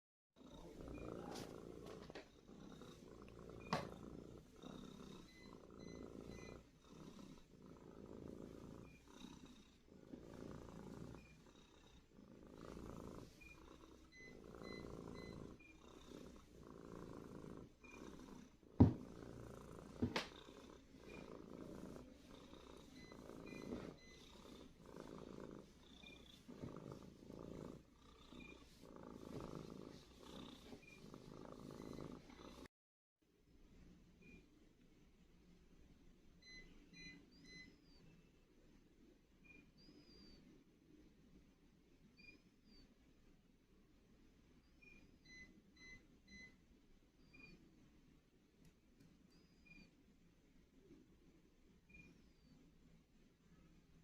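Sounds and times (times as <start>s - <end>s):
cat purring: 0.4s - 32.7s.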